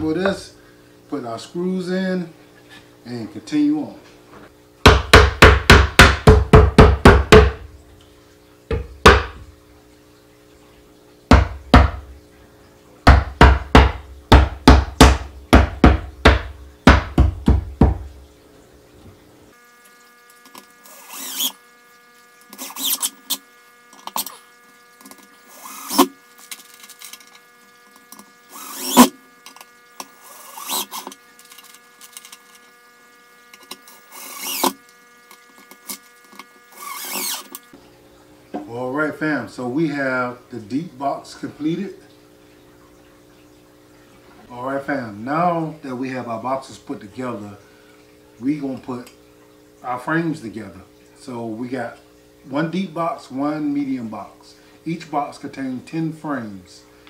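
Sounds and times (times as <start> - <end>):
hammer beating wooden joints: 4.9 - 7.6, 13.1 - 18.0.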